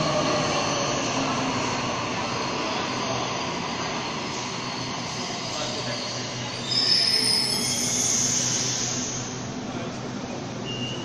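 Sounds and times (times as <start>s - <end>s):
high-pitched brake squeal: 5.1s - 9.4s, 10.6s - 11.0s.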